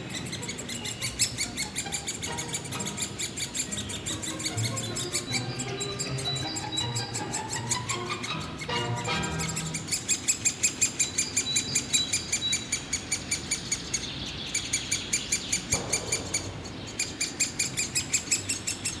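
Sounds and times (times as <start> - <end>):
nestlings begging chatter: 0.0 - 19.0
single knock: 15.7 - 18.1.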